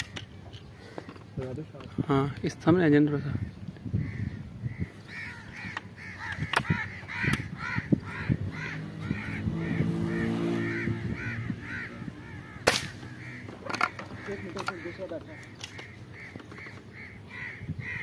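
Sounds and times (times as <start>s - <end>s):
birds harsh calls: 0.0s - 18.0s
sharp crack: 12.6s - 13.9s.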